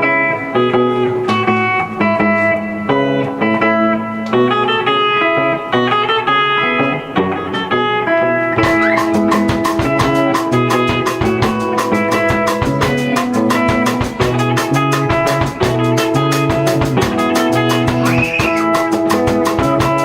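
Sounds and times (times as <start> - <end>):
bass guitar: 0.0 - 20.0
electric guitar lines: 0.0 - 20.0
drums playing: 8.6 - 20.0.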